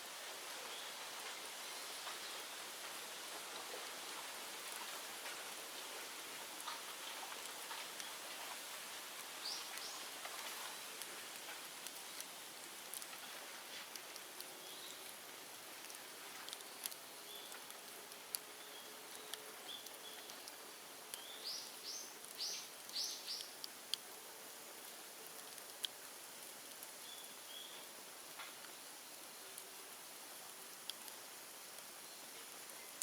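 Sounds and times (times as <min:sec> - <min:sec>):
steady hiss of fire: 0:00.0 - 0:33.0
bonfire crackling: 0:00.1 - 0:33.0
bird chirping: 0:21.2 - 0:23.5.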